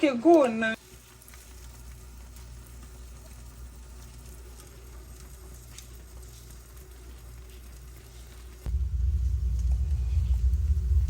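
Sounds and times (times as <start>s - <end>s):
food sizzling in a pan: 0.0s - 11.0s
steady low hum: 6.2s - 11.0s.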